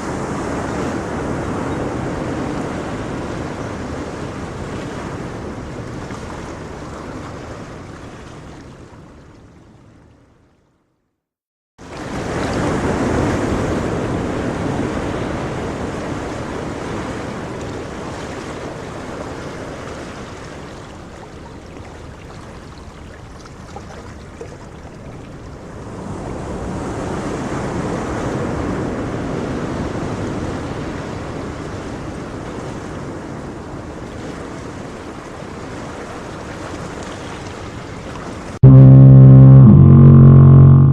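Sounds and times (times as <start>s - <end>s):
ocean surf washing on beach: 0.0s - 9.1s, 11.8s - 22.7s, 25.0s - 38.6s.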